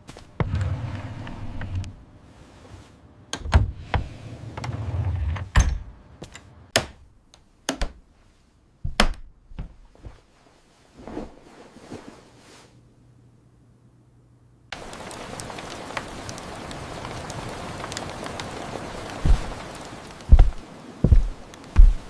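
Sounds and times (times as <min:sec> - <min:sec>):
sharp knocks and thuds: 0:08.8 - 0:10.2, 0:19.2 - 0:19.6, 0:20.3 - 0:22.0.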